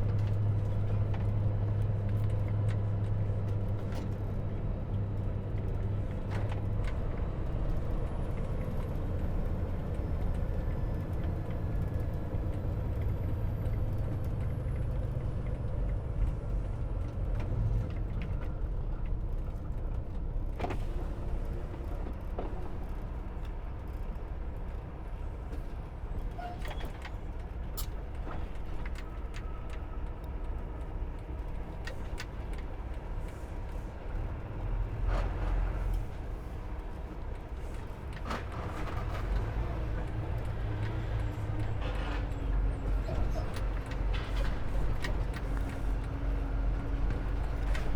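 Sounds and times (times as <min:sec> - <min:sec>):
road noise: 0:27.2 - 0:47.9.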